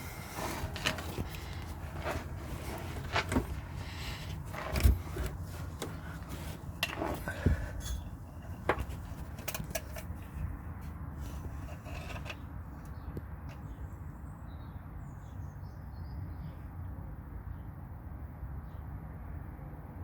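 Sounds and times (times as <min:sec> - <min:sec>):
small birds chirping: 0:11.6 - 0:16.8.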